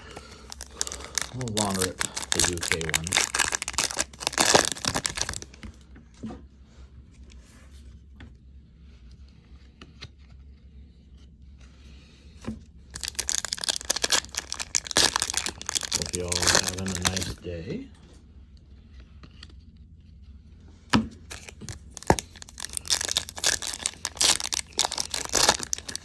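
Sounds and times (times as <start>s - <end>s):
foil wrapper tearing and crinkling: 0.0s - 5.7s, 12.9s - 17.4s, 21.3s - 26.0s.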